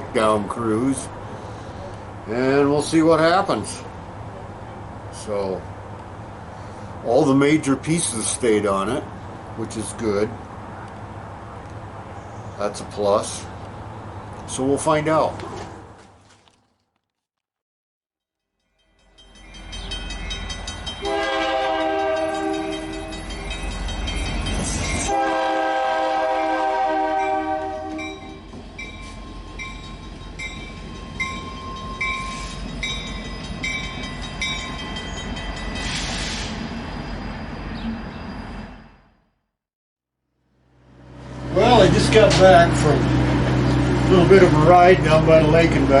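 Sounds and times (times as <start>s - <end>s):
train rumbling past: 0.0s - 15.3s, 18.8s - 39.4s, 40.6s - 46.0s
train air horn blasts: 21.0s - 23.2s, 25.1s - 28.5s.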